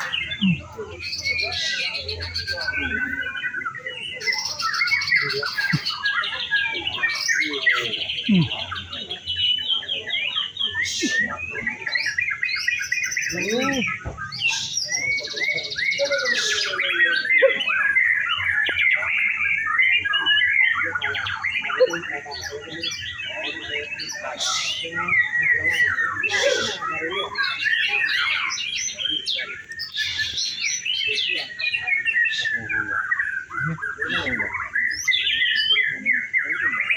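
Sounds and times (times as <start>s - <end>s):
songbirds singing: 0.0s - 36.9s.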